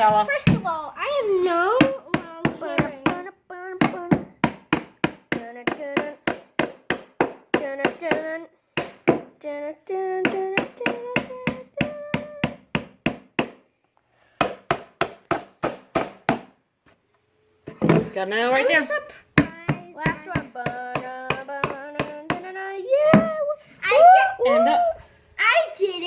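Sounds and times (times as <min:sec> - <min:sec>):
hammer striking nails into wood: 0:03.8 - 0:09.3, 0:10.2 - 0:13.6, 0:14.4 - 0:16.6, 0:19.4 - 0:22.5.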